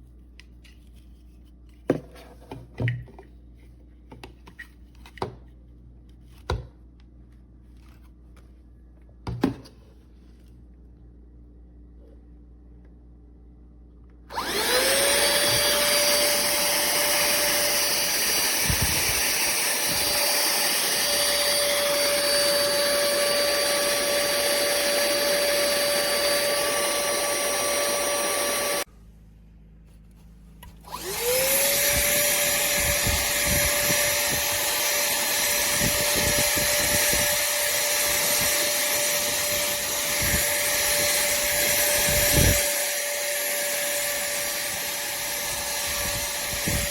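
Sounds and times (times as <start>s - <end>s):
handheld vacuum cleaner whining: 14.3s - 28.9s, 30.6s - 46.9s.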